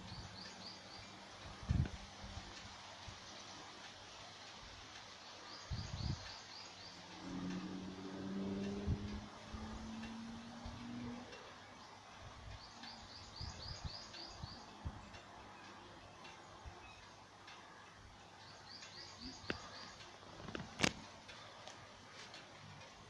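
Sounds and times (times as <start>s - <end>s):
faint outdoor background noise: 0.0s - 23.0s
sharp clicks: 12.5s - 23.0s
small bird calling: 18.5s - 20.9s.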